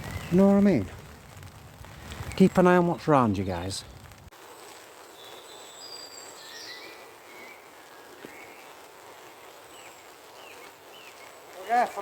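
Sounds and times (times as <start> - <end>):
background hiss: 0.0 - 12.0
birds whistling: 5.2 - 11.5.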